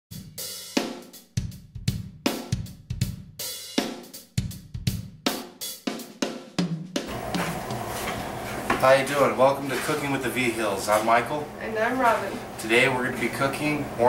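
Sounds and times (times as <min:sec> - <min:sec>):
drum kit beat with cymbals: 0:00.1 - 0:10.2.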